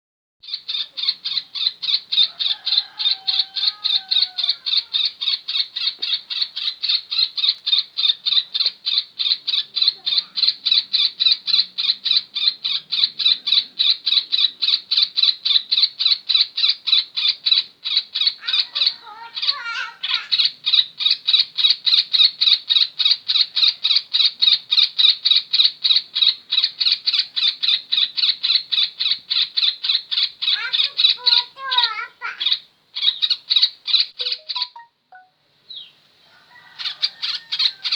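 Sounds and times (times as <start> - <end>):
bird harsh chirps: 16.4 - 21.2, 27.4 - 36.0.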